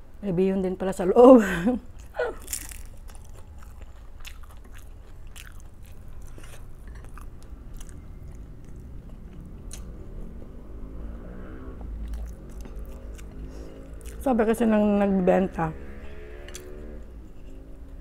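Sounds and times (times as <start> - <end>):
crunchy bites: 2.0 - 10.0
chewing and biting: 2.0 - 10.5, 11.8 - 14.3, 16.5 - 18.0.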